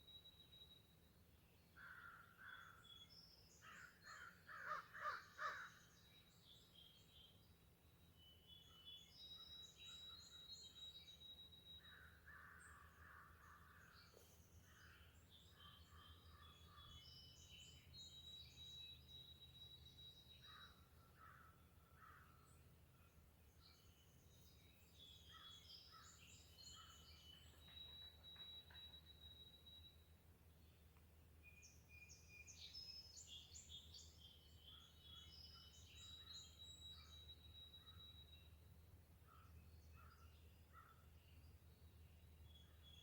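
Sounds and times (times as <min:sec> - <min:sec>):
birds whistling and chirping: 0:25.0 - 0:30.1, 0:31.5 - 0:38.6.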